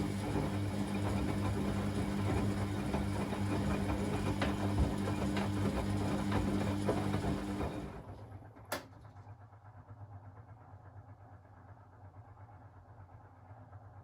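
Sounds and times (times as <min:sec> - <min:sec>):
washing machine motor humming: 0:00.0 - 0:08.2.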